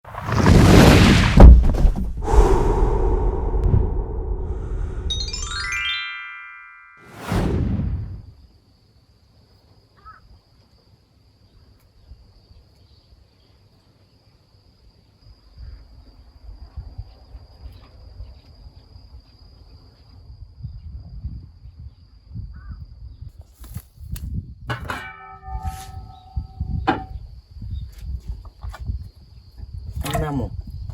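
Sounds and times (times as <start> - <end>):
low microphone rumble: 1.4 - 5.2.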